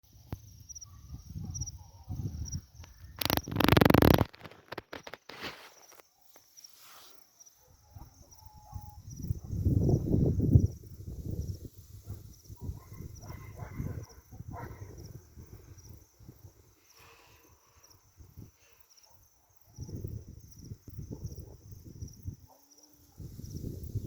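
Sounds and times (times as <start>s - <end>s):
crickets chirping: 0.1s - 24.0s.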